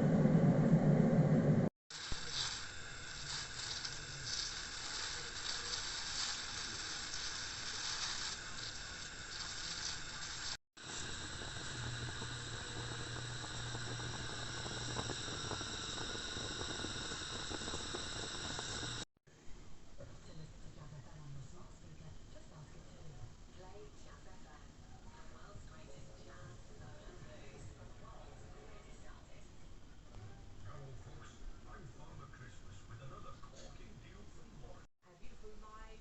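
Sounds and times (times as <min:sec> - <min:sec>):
food sizzling in hot oil: 0:01.9 - 0:19.1.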